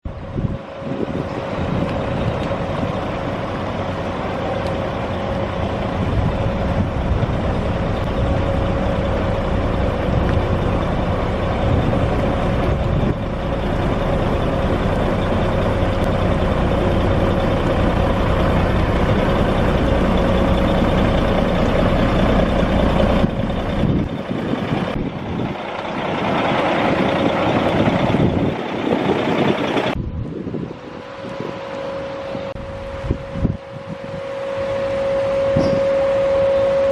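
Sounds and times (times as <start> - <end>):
woodworking machinery humming: 1.5 - 30.0.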